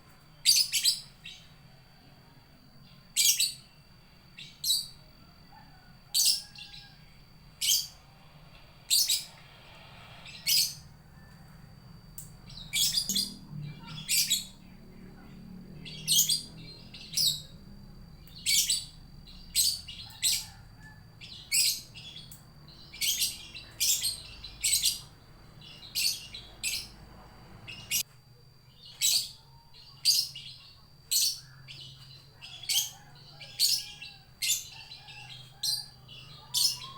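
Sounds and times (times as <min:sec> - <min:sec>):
lovebird shrill calls: 0:12.5 - 0:14.5.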